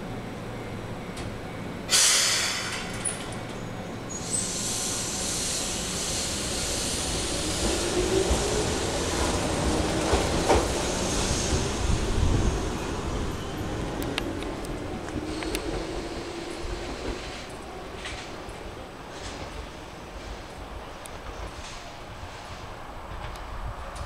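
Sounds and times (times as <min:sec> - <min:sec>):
air brakes hissing: 0:01.9 - 0:03.2, 0:04.1 - 0:07.8, 0:15.2 - 0:17.5.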